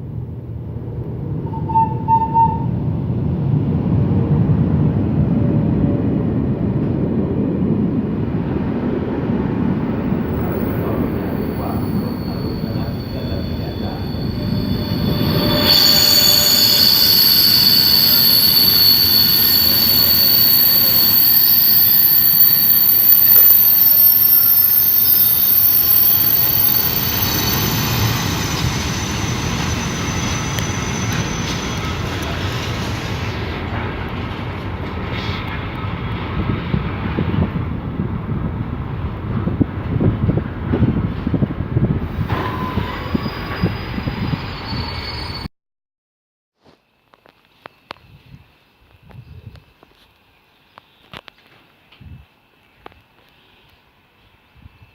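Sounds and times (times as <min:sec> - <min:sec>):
train rumbling past: 0:00.0 - 0:45.5
steady high-pitched tones: 0:09.6 - 0:33.2.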